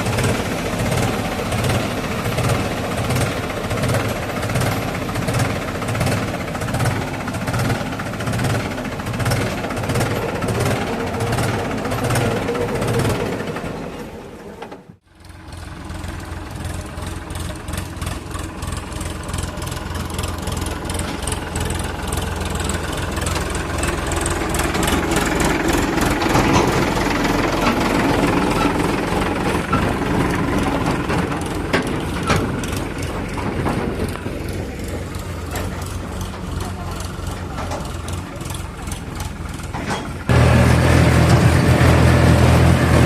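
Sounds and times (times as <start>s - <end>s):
heavy diesel engine running: 0.0s - 43.0s.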